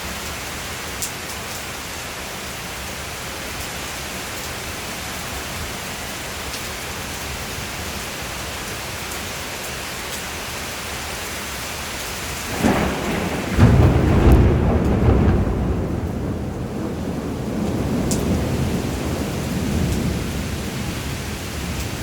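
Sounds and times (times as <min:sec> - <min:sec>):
steady rain falling: 0:00.0 - 0:22.0
thunder rumble: 0:12.4 - 0:22.0.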